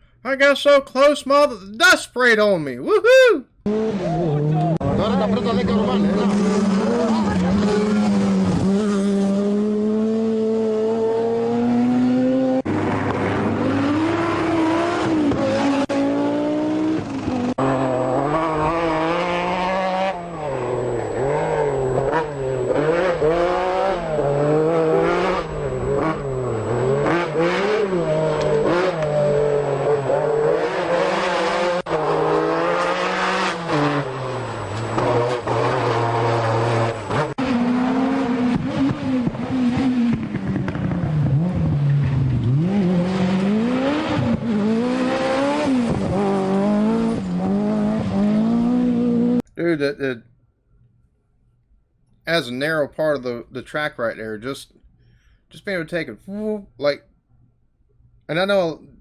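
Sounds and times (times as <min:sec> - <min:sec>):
rally car engines revving: 0:03.6 - 0:49.4.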